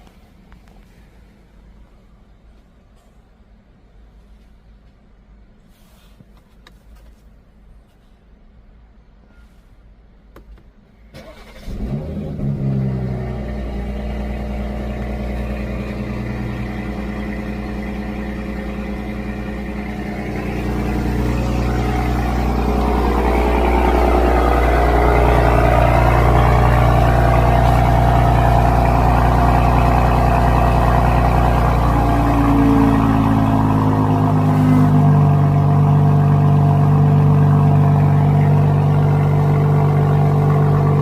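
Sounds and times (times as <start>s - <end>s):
car engine cold start and idle: 10.8s - 41.0s.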